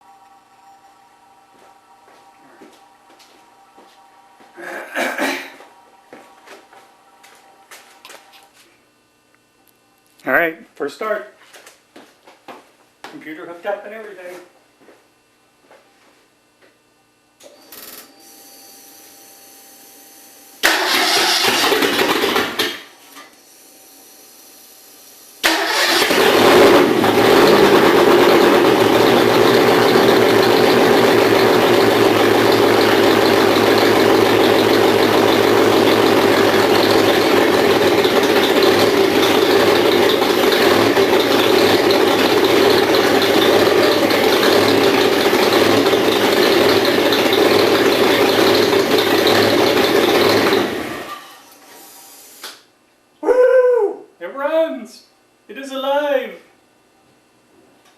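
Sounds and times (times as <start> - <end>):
faint steady hum: 0.0 - 20.7
starter motor cranking: 20.6 - 22.8, 25.4 - 51.1
engine running loudly: 25.5 - 51.2.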